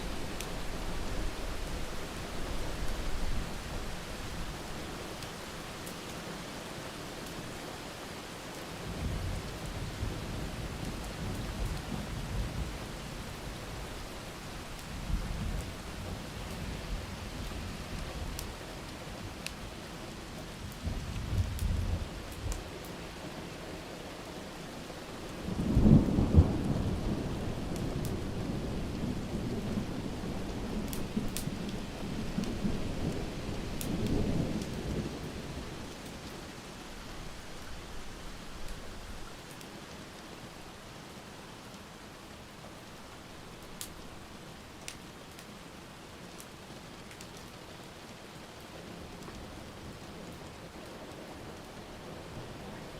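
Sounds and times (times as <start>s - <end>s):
steady rain: 0.0s - 52.9s
wood fire crackles: 0.0s - 52.9s
thunder rumbling: 25.5s - 36.0s.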